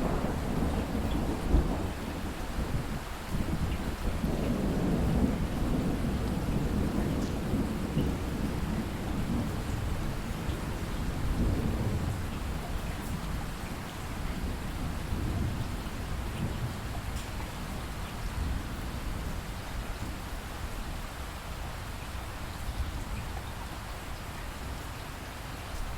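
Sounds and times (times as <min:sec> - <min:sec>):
rolling thunder rumble: 0:00.0 - 0:20.8
heavy rain: 0:00.0 - 0:25.9.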